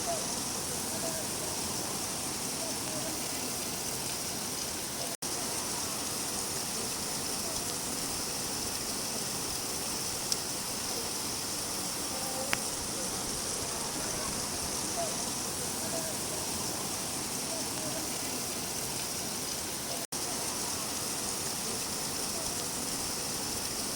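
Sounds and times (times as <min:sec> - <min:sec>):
steady rain falling: 0:00.0 - 0:23.9
faint ticks: 0:12.3 - 0:12.7.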